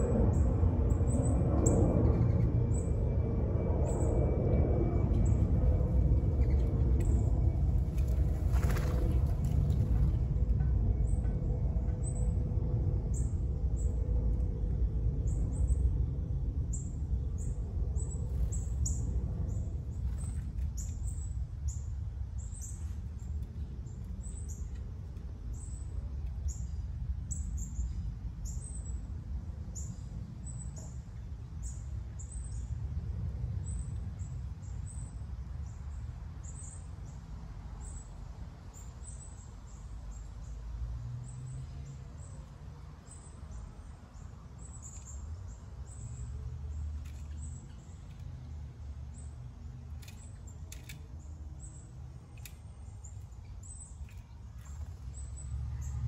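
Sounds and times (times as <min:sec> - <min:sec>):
steady low rumble: 0:00.0 - 0:40.9
small birds chirping: 0:05.2 - 0:10.3, 0:41.2 - 0:56.0.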